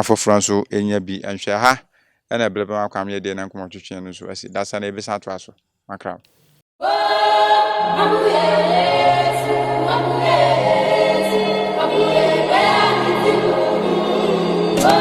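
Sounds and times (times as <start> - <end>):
gospel choir singing: 6.8 - 15.0.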